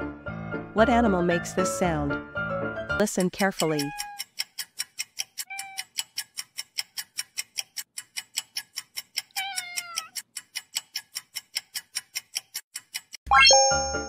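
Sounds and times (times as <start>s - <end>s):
clock ticking: 3.0s - 14.0s
cat meowing: 5.5s - 5.8s, 9.3s - 10.2s.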